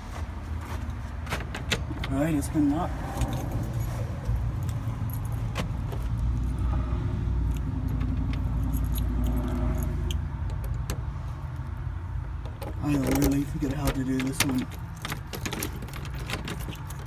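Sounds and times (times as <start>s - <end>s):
low rumble: 2.0s - 10.5s
keys jangling: 3.0s - 6.1s, 7.5s - 10.2s, 12.9s - 17.0s.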